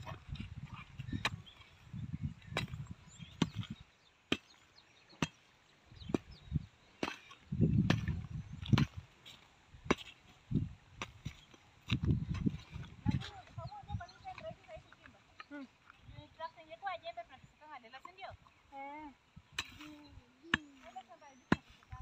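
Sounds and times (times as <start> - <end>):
hoes striking soil: 0.0 - 13.5, 19.4 - 22.0.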